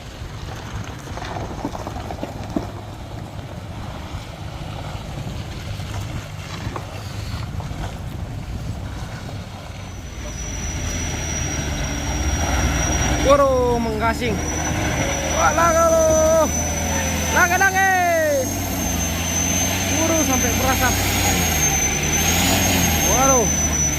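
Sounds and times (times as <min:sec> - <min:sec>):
wind buffeting microphone: 0:00.0 - 0:15.3
truck engine labouring: 0:00.0 - 0:23.9
thin high whine: 0:09.6 - 0:23.9.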